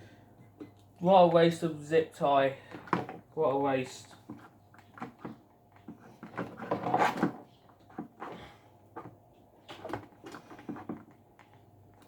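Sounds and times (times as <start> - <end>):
plastic scraping: 4.2 - 11.6.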